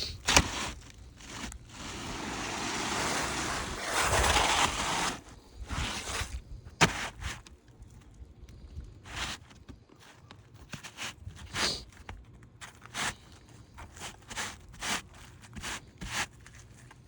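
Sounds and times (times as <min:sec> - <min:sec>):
shingles scraping and rustling: 0:00.0 - 0:07.6.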